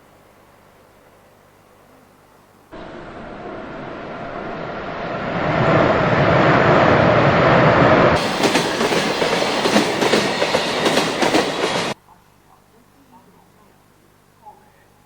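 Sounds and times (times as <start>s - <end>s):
train running on rails: 2.8s - 12.0s.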